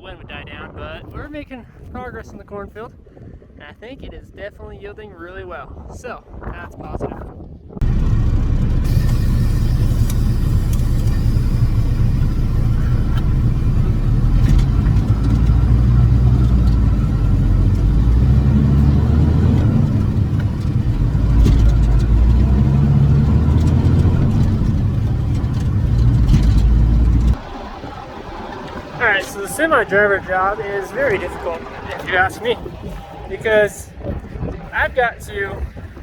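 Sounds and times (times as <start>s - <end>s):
diesel tractor engine revving: 7.8s - 33.2s.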